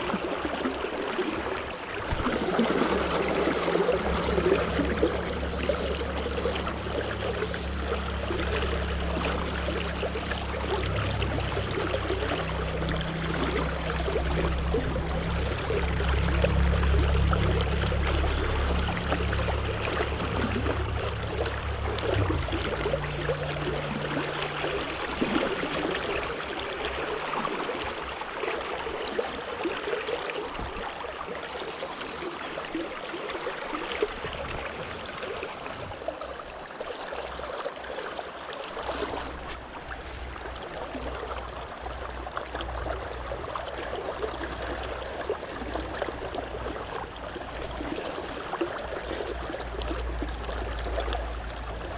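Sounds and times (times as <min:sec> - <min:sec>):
stream babbling: 0:00.0 - 0:51.9
deep low rumble: 0:02.1 - 0:26.6.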